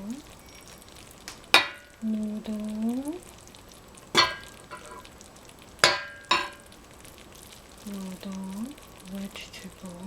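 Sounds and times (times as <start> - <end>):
utensil clinking against dishware: 1.6 - 2.0, 4.2 - 5.1, 5.8 - 6.7.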